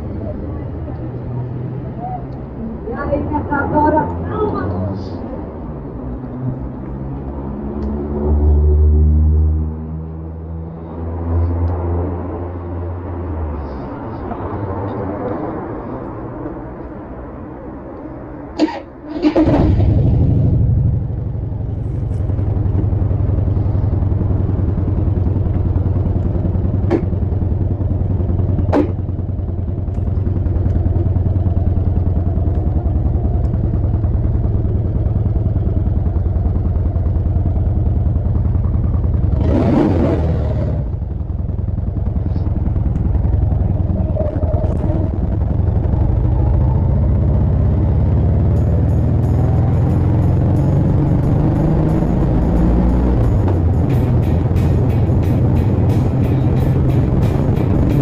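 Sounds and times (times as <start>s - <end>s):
motorcycle engine running: 19.3s - 58.0s.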